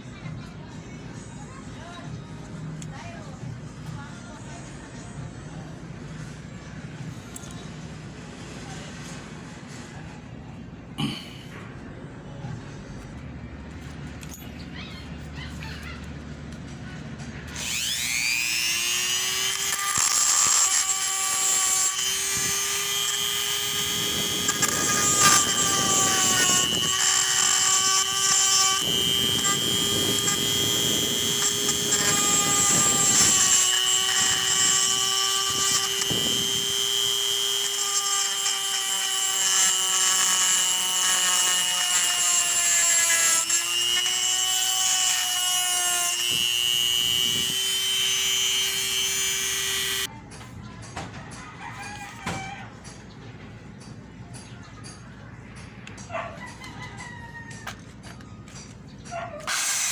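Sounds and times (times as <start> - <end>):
power tool whining: 15.9 - 50.1, 59.4 - 59.9
grinding noise: 16.2 - 50.1.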